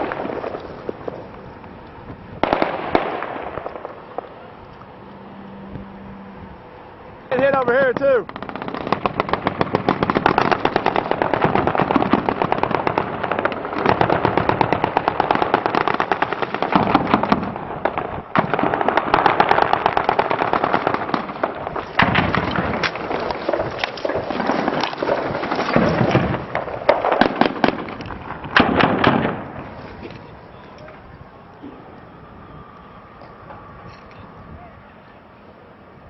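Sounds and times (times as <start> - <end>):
automatic gunfire bursts: 7.3 - 17.5.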